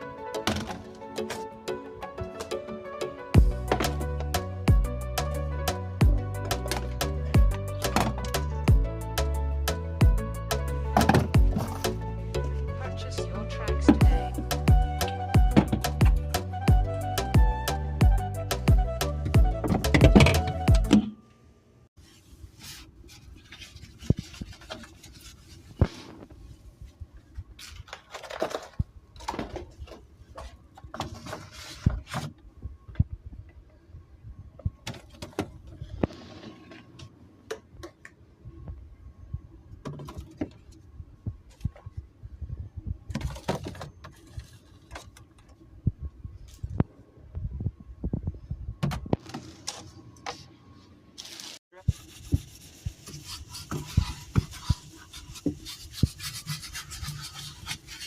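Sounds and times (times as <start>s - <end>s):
items knocking and clicking: 11.0s - 11.8s, 43.1s - 45.6s.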